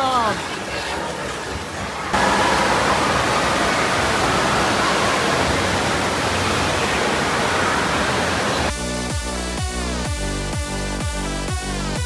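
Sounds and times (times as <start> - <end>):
rushing falling water: 1.0 - 8.8.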